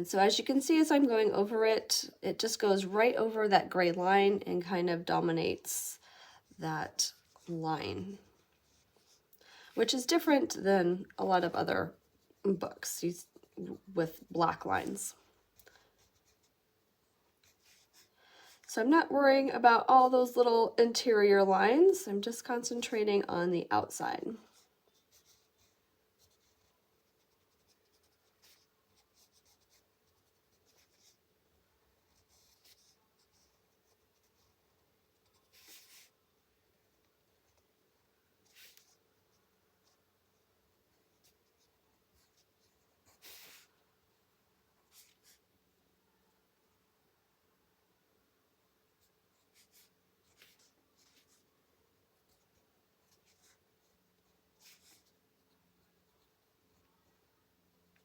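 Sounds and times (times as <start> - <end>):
pencil scratching on paper: 16.0 - 16.6, 24.5 - 31.3, 32.0 - 36.2, 49.3 - 51.5, 52.2 - 57.0.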